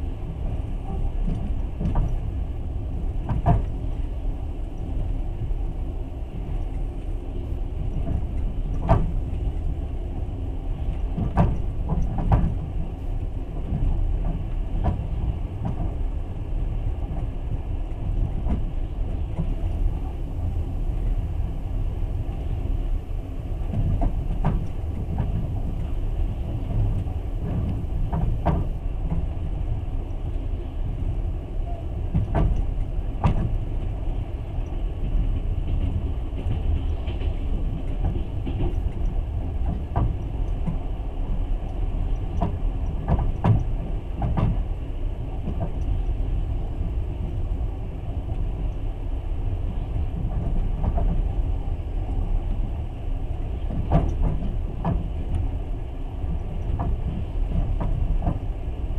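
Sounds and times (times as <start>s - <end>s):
train rumbling on rails: 0.0s - 58.9s
wheels knocking and clicking: 42.2s - 44.6s.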